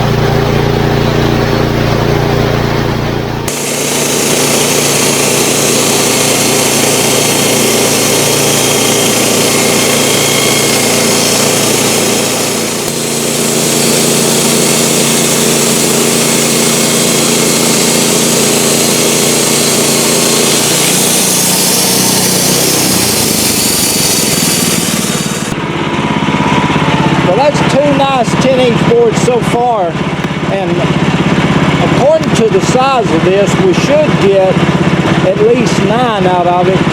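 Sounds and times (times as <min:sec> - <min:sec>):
sawmill engine running: 0:00.0 - 0:36.9
saw blade cutting wood: 0:03.5 - 0:25.6.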